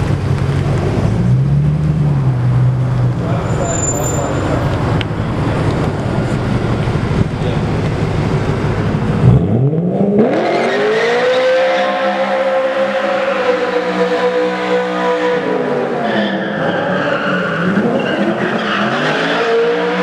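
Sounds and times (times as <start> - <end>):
car engines rumbling: 0.0 - 20.0
car engine revving hard: 8.4 - 16.0, 16.6 - 20.0.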